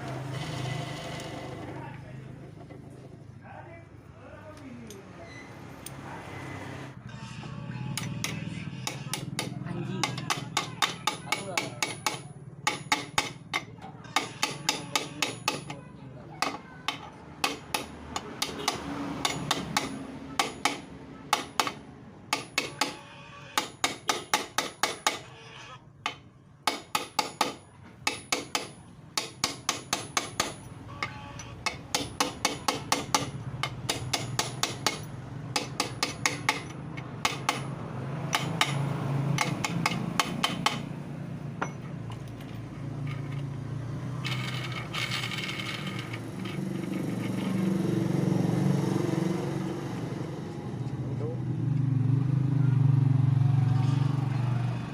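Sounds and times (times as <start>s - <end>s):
hammer striking metal: 7.9s - 25.3s, 26.0s - 42.4s.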